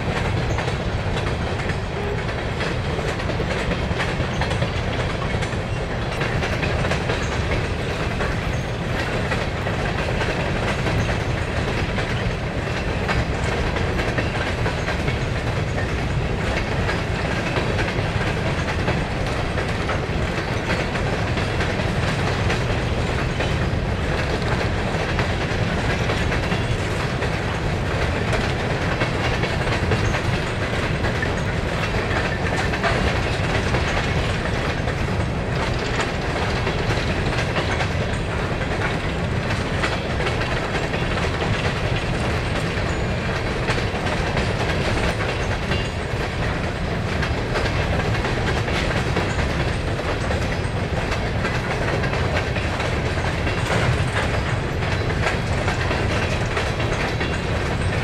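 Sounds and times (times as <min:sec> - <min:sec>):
train wheels rumbling clickety-clack: 0:00.0 - 0:58.0.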